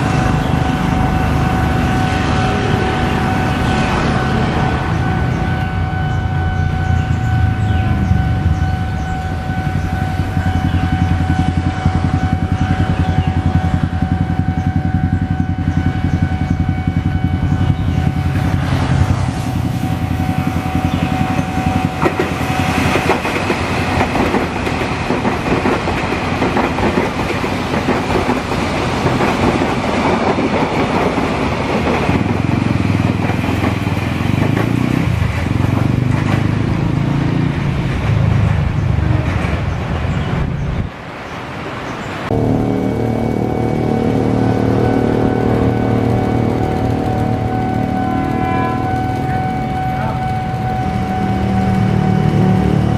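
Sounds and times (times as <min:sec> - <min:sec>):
level crossing warning tone: 0:00.0 - 0:38.3, 0:42.3 - 0:52.9
electric train passing: 0:00.0 - 0:52.9.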